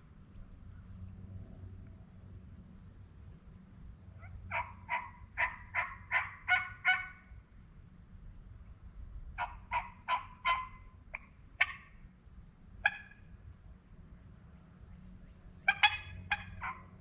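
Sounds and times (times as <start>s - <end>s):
turkey yelping: 4.2s - 7.3s, 9.4s - 11.9s, 12.8s - 13.3s, 15.6s - 17.0s.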